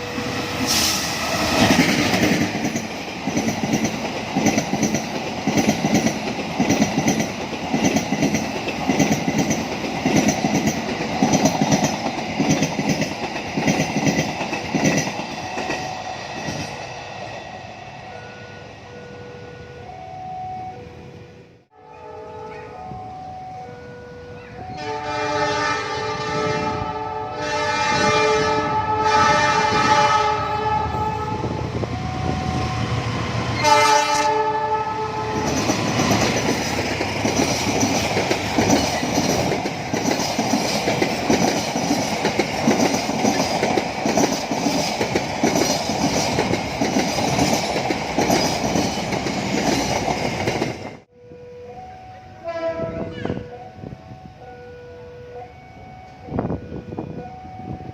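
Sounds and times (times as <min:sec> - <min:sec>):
train wheels clicking over rails: 0:00.4 - 0:17.4, 0:35.3 - 0:51.1
locomotive air horn blasts: 0:24.7 - 0:31.6, 0:33.6 - 0:35.5, 0:52.3 - 0:53.9.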